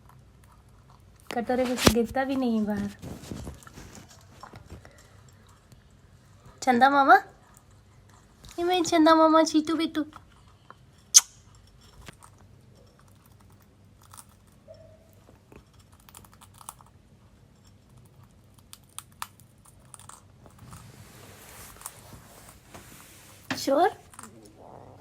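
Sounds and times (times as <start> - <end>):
parrot beak crunching food: 10.1 - 20.9, 24.0 - 25.0.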